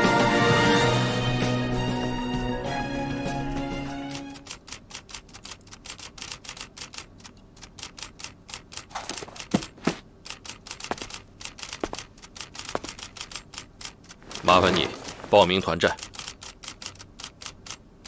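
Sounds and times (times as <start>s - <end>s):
fast light clicks: 4.1s - 9.5s, 10.2s - 17.9s.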